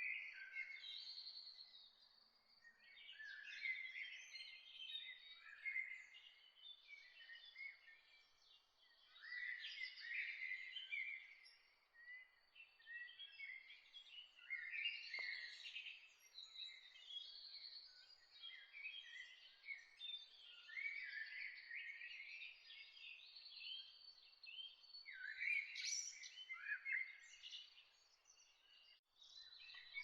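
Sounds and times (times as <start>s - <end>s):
songbirds chirping and trilling: 0.0s - 30.0s.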